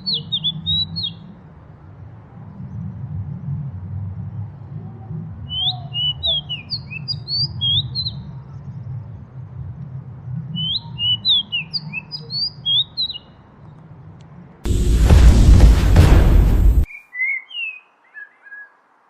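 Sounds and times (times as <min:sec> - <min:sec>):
steady low rumble: 0:14.7 - 0:16.9
bird chirping and whistling: 0:16.9 - 0:18.7.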